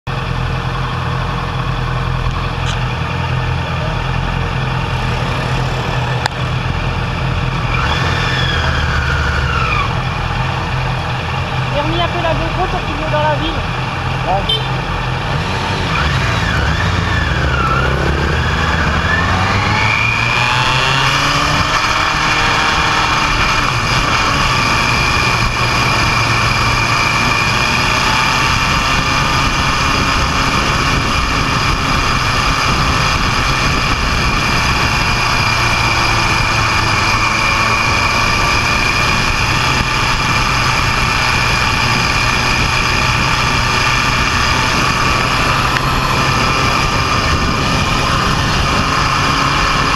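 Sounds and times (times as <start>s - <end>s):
vehicle engine running: 0.1s - 49.9s
steady high whine: 0.3s - 24.1s.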